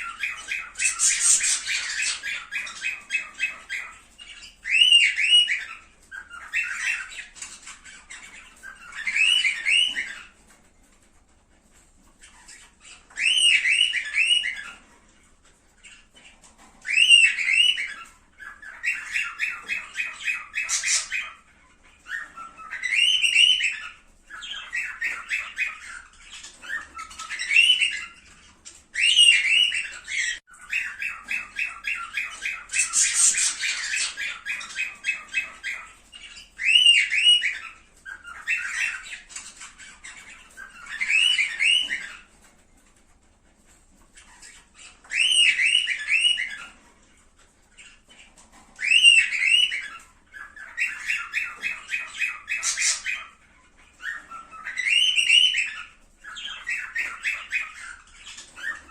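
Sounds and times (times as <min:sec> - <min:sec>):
cockatiel chattering: 0:00.0 - 0:10.3, 0:15.8 - 0:42.3, 0:47.8 - 0:58.9
cockatiel whistling: 0:00.0 - 0:10.3, 0:12.6 - 0:14.8, 0:16.8 - 0:21.4, 0:29.0 - 0:42.2, 0:44.4 - 0:46.8, 0:48.8 - 0:53.3, 0:54.0 - 0:58.9.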